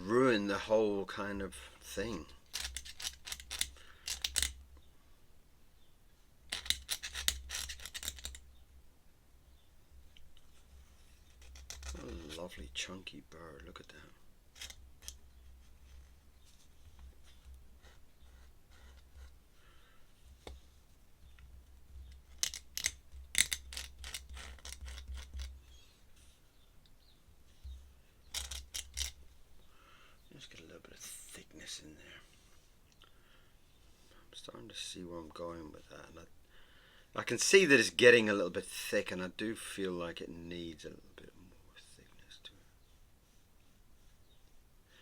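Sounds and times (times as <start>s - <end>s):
small objects clicking on desk: 2.5s - 4.6s, 6.5s - 8.4s, 11.4s - 12.0s, 14.6s - 15.2s, 22.0s - 25.6s, 28.3s - 29.2s
pen scratching on paper: 17.2s - 19.4s.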